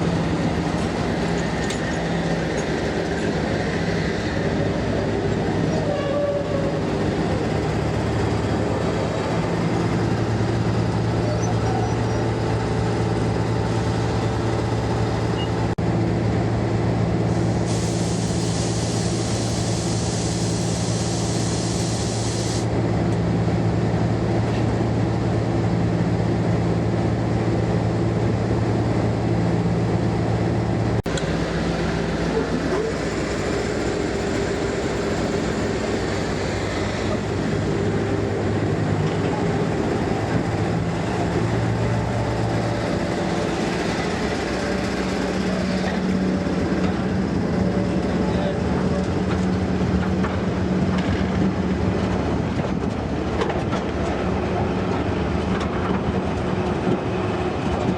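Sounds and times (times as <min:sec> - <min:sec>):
diesel locomotive engine hum: 0:00.0 - 0:57.9
hiss: 0:17.3 - 0:22.7.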